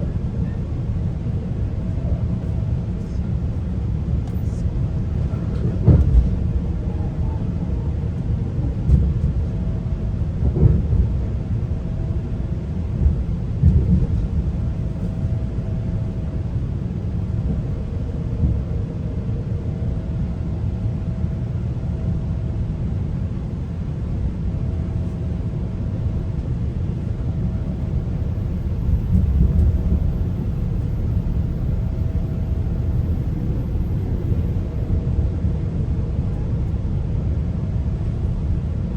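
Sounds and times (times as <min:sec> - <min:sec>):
train running rumble: 0:00.0 - 0:38.9
train thumps: 0:05.5 - 0:06.5, 0:08.7 - 0:09.4, 0:10.4 - 0:11.2, 0:13.0 - 0:14.5.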